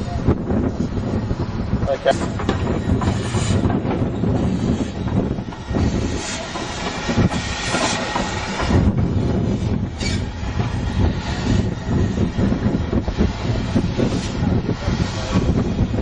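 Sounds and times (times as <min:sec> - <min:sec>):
train rumbling on rails: 0:00.0 - 0:16.0
wheels clattering over rail joints: 0:02.0 - 0:10.8.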